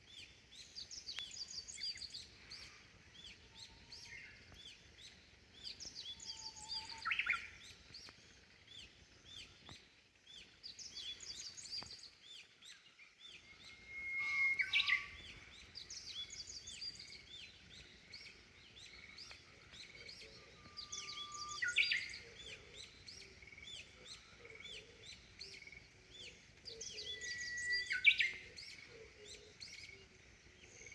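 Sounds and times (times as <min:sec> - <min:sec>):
bird song with long whistle: 0:00.0 - 0:09.6, 0:10.3 - 0:30.9
songbirds chirping: 0:00.0 - 0:30.9.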